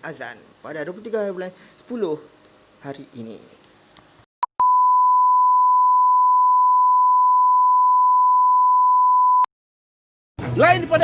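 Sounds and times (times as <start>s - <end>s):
electronic bleep tone: 4.5s - 9.5s.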